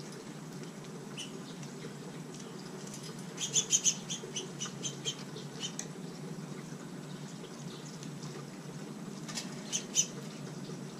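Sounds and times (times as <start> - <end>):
low background hum: 0.0 - 10.9
small birds chirping faintly: 0.0 - 10.9.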